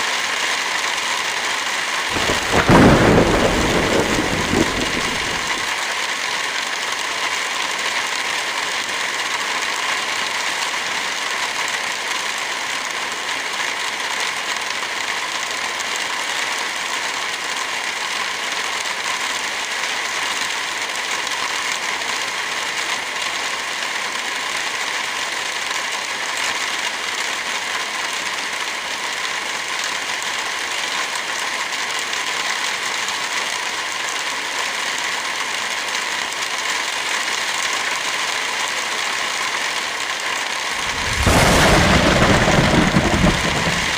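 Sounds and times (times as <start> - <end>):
steady rain hissing: 0.0 - 43.9
wood fire crackling: 2.1 - 5.7, 40.7 - 43.9.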